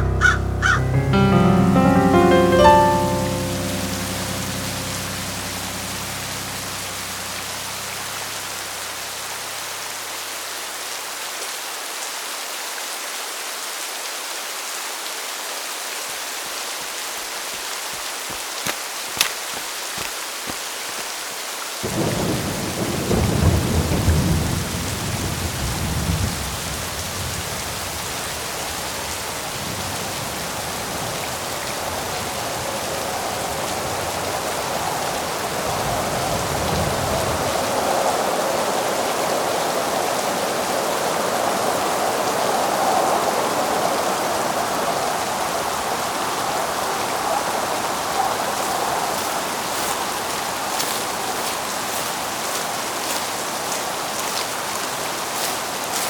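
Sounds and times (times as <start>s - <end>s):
steady rain pouring: 1.7s - 56.0s
thunder crack and rumble: 21.8s - 26.6s.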